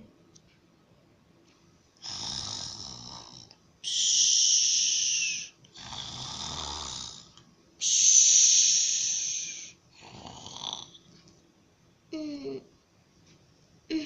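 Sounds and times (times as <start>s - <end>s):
person imitating snoring: 2.0s - 11.0s.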